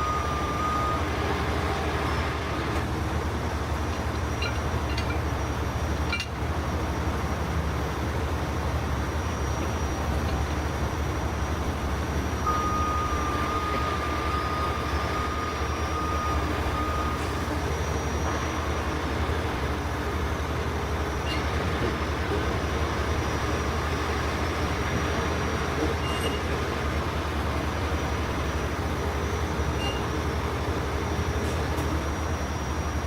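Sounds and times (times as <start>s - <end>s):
heavy truck engines rumbling: 0.0s - 33.0s.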